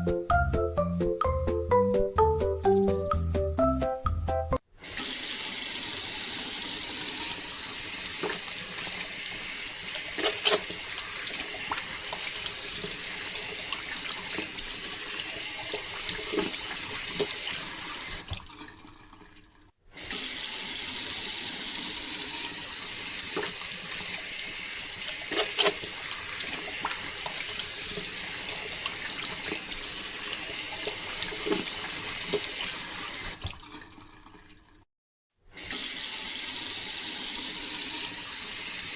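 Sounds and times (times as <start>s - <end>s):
water pouring from pipe: 4.8s - 34.8s.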